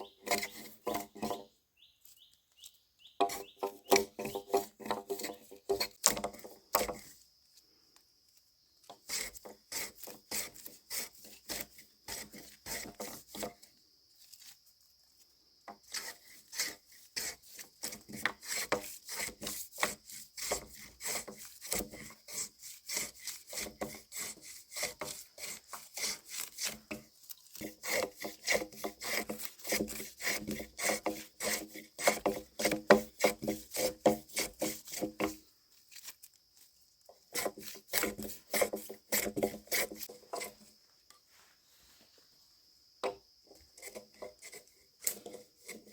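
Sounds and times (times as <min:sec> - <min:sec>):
hand tool rasping wood: 0:00.0 - 0:01.5, 0:03.2 - 0:07.2, 0:08.8 - 0:13.7, 0:15.7 - 0:35.5, 0:37.1 - 0:40.8, 0:43.5 - 0:45.9.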